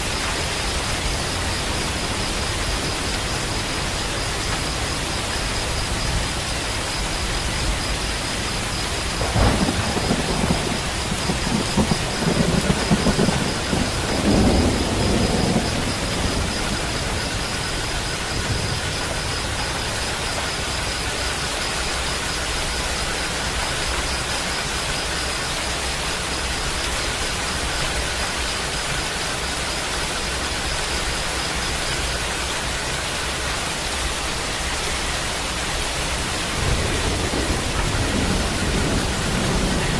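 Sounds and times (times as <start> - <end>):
steady rain: 0.0 - 39.9
thunder rumbling: 7.5 - 20.9, 35.6 - 39.9.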